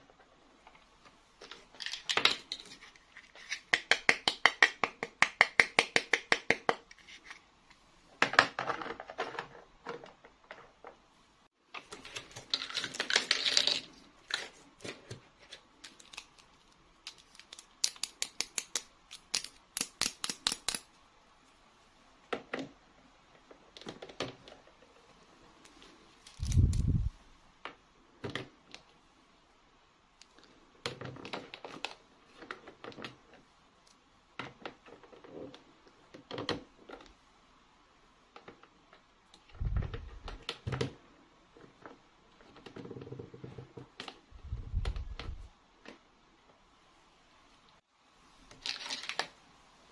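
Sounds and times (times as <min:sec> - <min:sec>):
plastic toy pieces clicking: 0:17.1 - 0:20.9.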